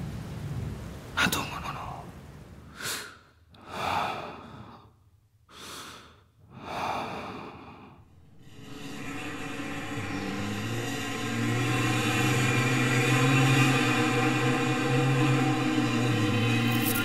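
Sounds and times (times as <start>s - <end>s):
man breathing deeply in sleep: 2.7s - 14.2s.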